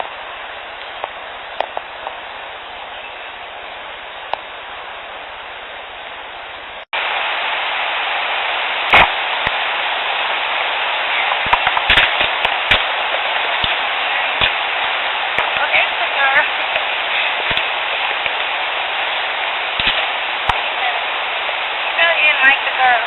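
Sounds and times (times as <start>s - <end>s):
steady hiss: 0.0s - 23.0s
sharp clicks and pops: 0.8s - 2.2s, 8.9s - 9.7s, 11.3s - 18.6s, 19.4s - 20.8s.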